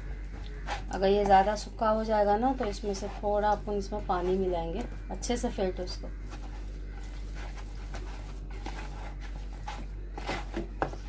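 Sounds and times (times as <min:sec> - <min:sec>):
paste stirred in a bowl: 0:02.5 - 0:04.6, 0:06.1 - 0:11.0.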